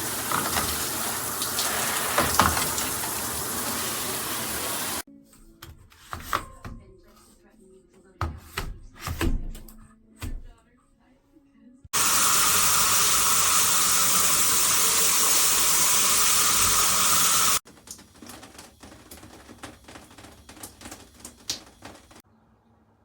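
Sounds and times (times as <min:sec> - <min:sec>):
water spraying from shower head: 0:00.0 - 0:05.1, 0:12.0 - 0:22.2
water drips and ticks: 0:17.6 - 0:22.2.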